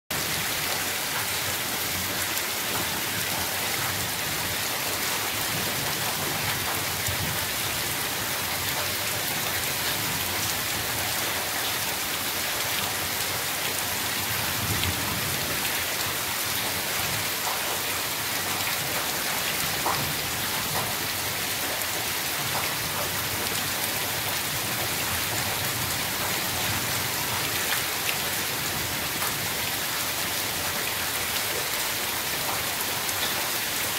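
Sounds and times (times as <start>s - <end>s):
heavy rain on foliage: 0.1s - 33.9s.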